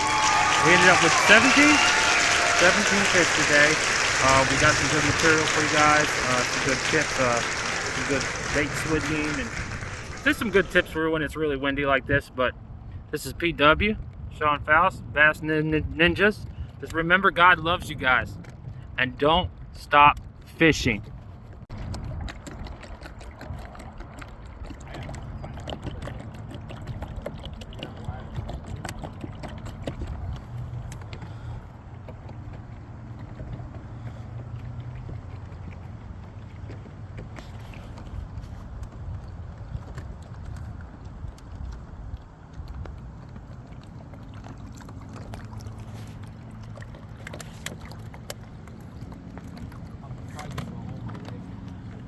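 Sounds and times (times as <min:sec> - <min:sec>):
boat motor humming: 0:00.0 - 0:11.2, 0:21.1 - 0:52.0
water slapping: 0:00.0 - 0:11.2, 0:21.5 - 0:52.0
wind rumbling on microphone: 0:00.0 - 0:16.8, 0:21.0 - 0:47.2.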